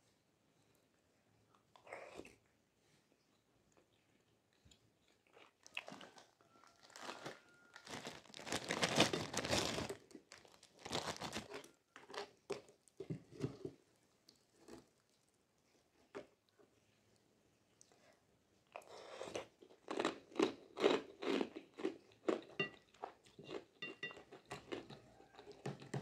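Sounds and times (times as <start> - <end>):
chewing and crunching: 3.7 - 16.7, 18.7 - 26.0.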